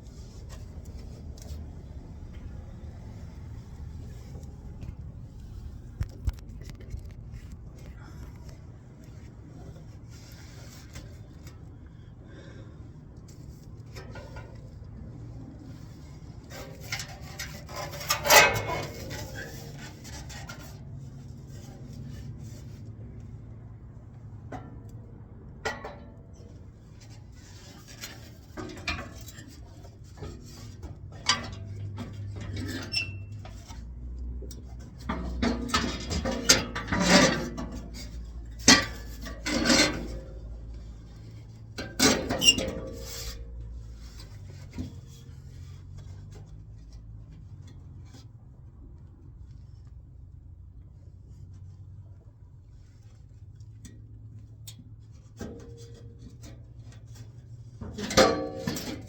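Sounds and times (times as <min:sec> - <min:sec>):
metal tools clinking and scraping: 0:16.6 - 0:20.7, 0:41.2 - 0:43.6.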